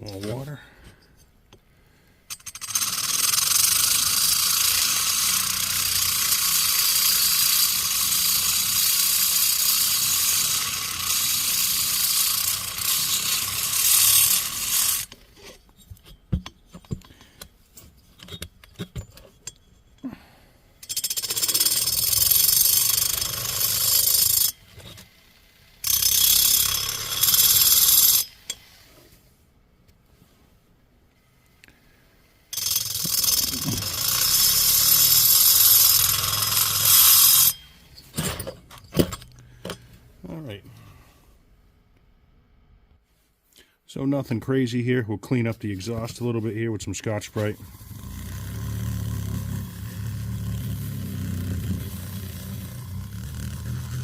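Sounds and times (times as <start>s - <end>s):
rotary tool grinding metal: 2.3s - 20.1s, 20.8s - 29.1s, 32.5s - 39.2s, 45.8s - 54.0s.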